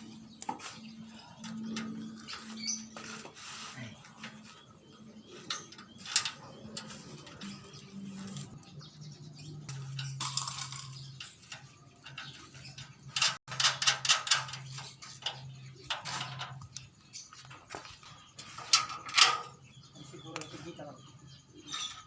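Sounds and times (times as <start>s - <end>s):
metal tools clicking and rattling: 5.3s - 8.7s, 9.4s - 16.9s, 17.5s - 19.6s.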